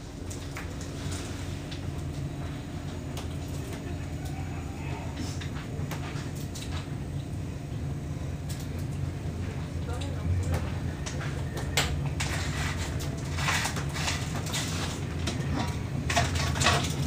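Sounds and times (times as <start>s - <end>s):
train carriage rumble: 0.0s - 17.0s.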